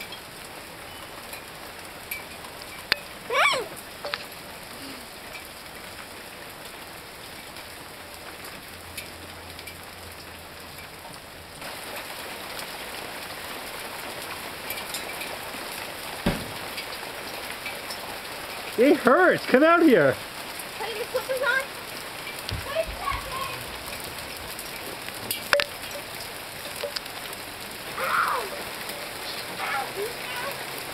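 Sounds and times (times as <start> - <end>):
hailstones clicking: 0.0 - 10.9, 11.6 - 30.9
hail hissing on hard surfaces: 0.0 - 30.9
single thump: 16.3 - 16.8.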